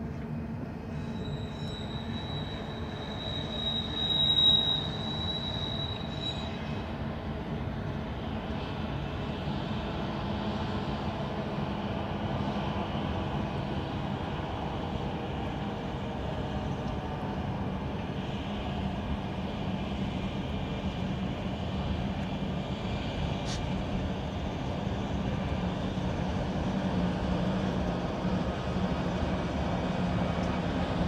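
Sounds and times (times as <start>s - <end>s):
freight train rumbling on bridge: 0.0s - 31.0s
high squeal: 0.9s - 6.8s.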